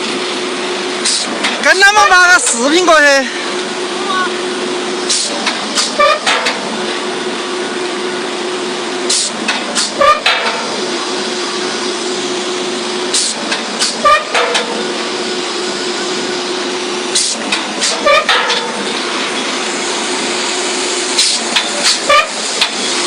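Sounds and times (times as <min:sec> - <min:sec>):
piling rig hum: 0:00.0 - 0:23.0
heavy hammer strike: 0:05.1 - 0:06.6, 0:09.1 - 0:10.7, 0:13.1 - 0:14.8, 0:17.2 - 0:18.9
sharp metallic clanks: 0:05.1 - 0:06.6, 0:09.1 - 0:10.7, 0:13.1 - 0:14.8, 0:17.2 - 0:18.9.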